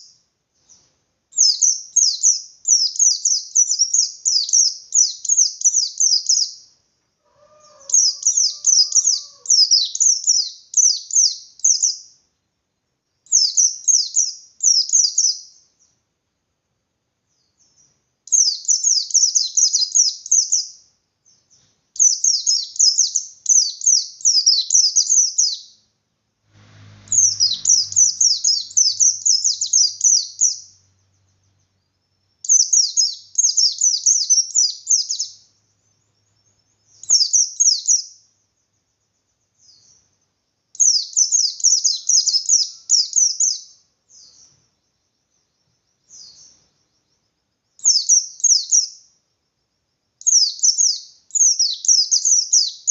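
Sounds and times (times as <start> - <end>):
bird singing fast high chirps: 0.0 - 6.7, 7.5 - 12.1, 13.3 - 15.6, 17.4 - 21.4, 22.0 - 25.8, 26.6 - 38.2, 39.6 - 44.6, 47.8 - 49.0, 50.2 - 52.9.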